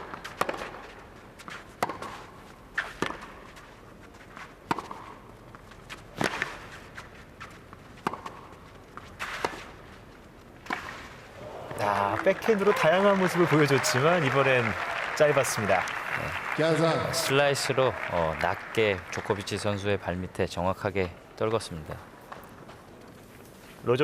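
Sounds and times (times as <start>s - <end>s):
racket striking tennis ball: 1.8s - 3.4s, 4.7s - 5.1s, 8.0s - 8.5s, 9.2s - 9.8s.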